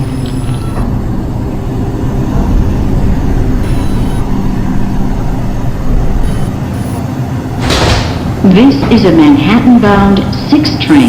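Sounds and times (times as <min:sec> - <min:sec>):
low electrical hum: 0:00.0 - 0:11.0
subway car rumble: 0:00.0 - 0:11.0.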